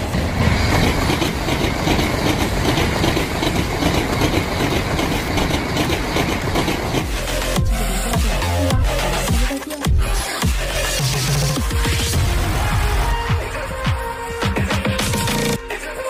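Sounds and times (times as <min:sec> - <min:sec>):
high-speed train passing: 0:00.0 - 0:08.7.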